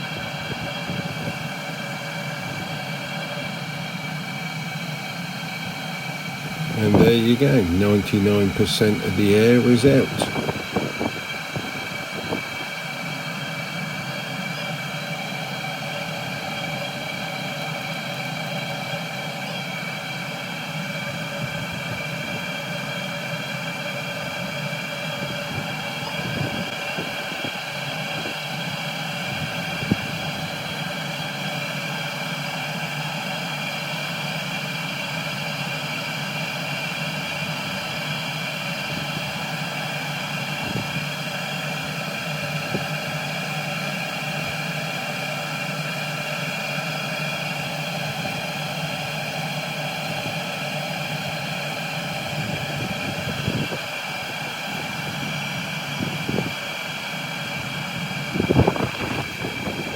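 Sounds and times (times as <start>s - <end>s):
air heater blower whirring: 5.5s - 15.0s, 37.3s - 59.9s.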